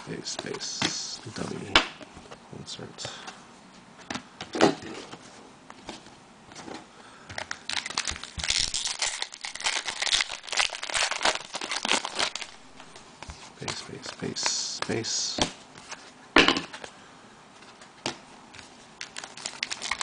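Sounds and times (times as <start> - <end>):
foil wrapper crinkling: 7.4 - 13.0, 19.0 - 20.0.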